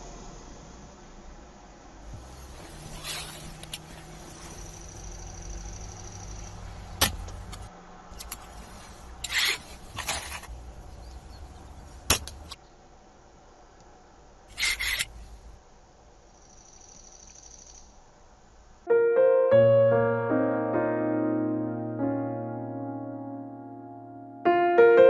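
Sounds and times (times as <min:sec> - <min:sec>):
slingshot rifle shot snapping: 0:12.0 - 0:12.6.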